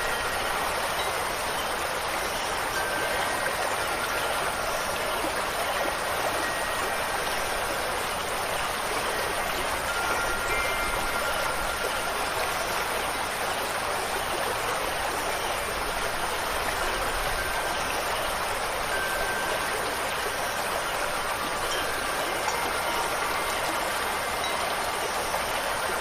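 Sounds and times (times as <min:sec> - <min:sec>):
faint wind chimes: 0:00.0 - 0:26.0
rushing water: 0:00.0 - 0:26.0.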